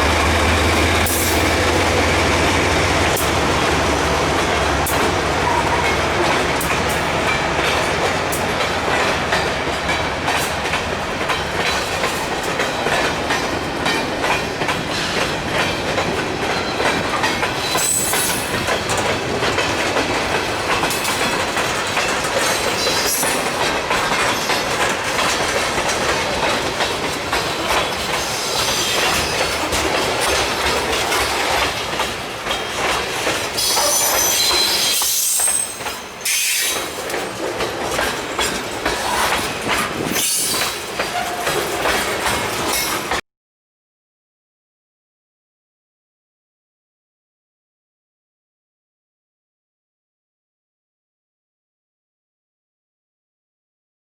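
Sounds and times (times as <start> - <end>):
train wheels clicking over rail joints: 0.0 - 43.2
wheel squeals: 33.6 - 36.9.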